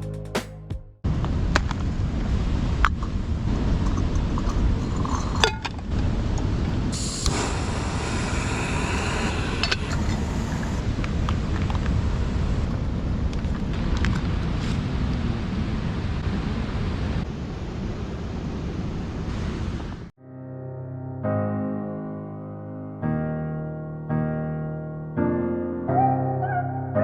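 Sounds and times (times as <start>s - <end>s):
wind on microphone: 1.1s - 20.1s
ocean surf: 5.4s - 20.1s.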